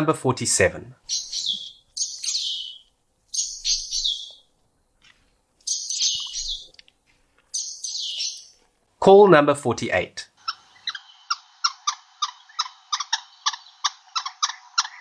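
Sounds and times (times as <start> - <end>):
bird chirping: 1.0 - 8.7, 10.4 - 15.0.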